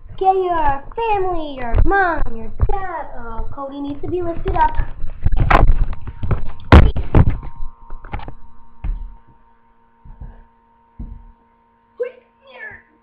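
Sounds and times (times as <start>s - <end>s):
faint steady hum: 0.0s - 13.0s
thumps and knocks: 3.9s - 9.2s, 10.0s - 10.4s, 11.0s - 11.4s.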